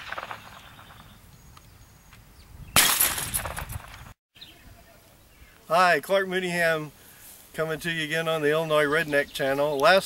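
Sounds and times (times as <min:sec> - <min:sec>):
gunshot: 0:00.0 - 0:01.0, 0:02.8 - 0:04.0
glass bottle shattering: 0:02.8 - 0:03.6.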